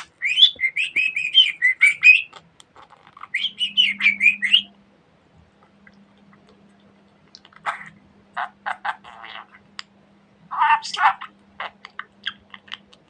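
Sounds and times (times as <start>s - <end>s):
budgerigar chirping: 0.0s - 2.4s, 3.2s - 4.7s.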